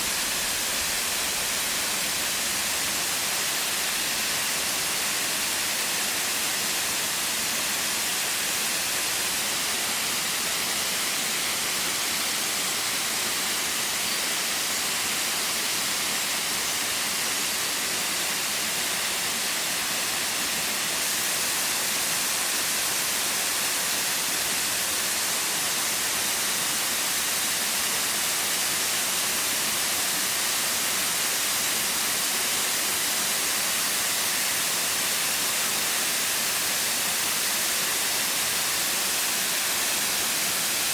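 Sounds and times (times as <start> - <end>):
waterfall rushing: 0.0 - 26.6, 31.4 - 40.9.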